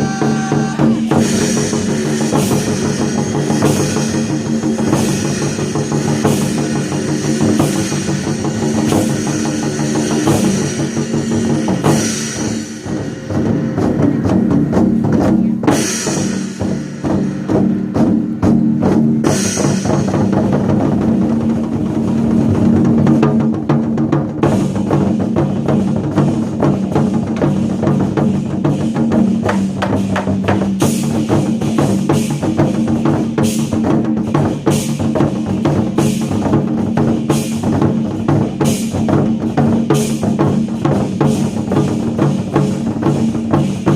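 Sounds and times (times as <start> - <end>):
war drums beating: 0.0 - 43.9.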